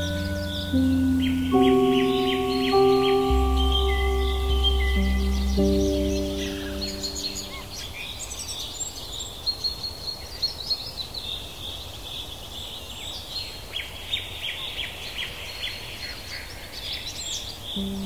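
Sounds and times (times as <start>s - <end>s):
songbirds chirping: 0.0s - 9.0s.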